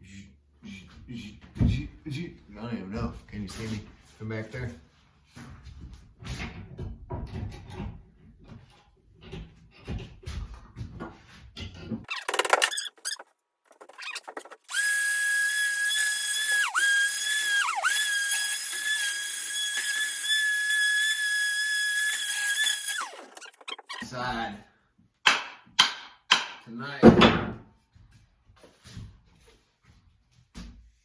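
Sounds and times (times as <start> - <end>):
power tool whining: 14.6 - 24.0.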